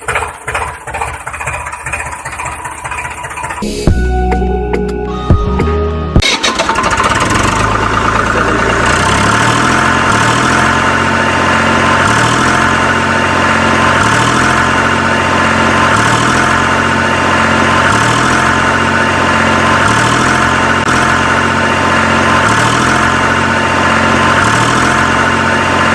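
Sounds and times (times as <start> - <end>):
motor running with stepped pattern: 6.9 - 25.9.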